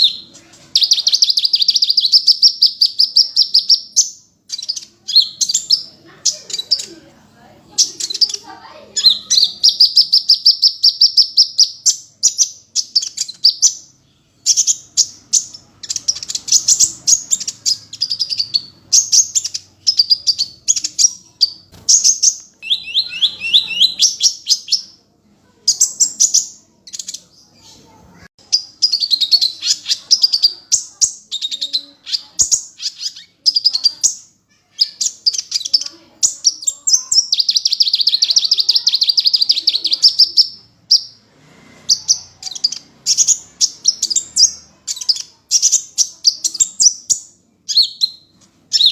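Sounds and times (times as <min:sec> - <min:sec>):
bird singing chirping trills: 0:00.0 - 0:07.1, 0:07.7 - 0:25.0, 0:25.6 - 0:41.2, 0:41.9 - 0:48.9.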